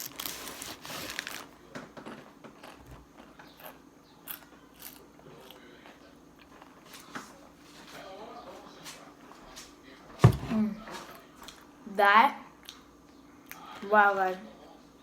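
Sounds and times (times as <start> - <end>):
crunchy snack chewing: 0.0 - 1.5, 2.1 - 6.9.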